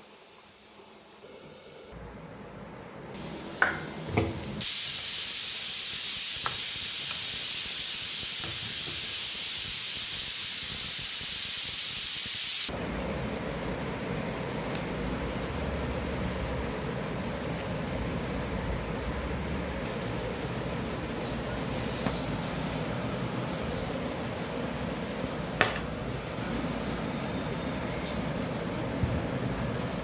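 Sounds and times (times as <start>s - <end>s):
loud steady cooking hiss: 0.0s - 2.0s, 3.1s - 12.8s.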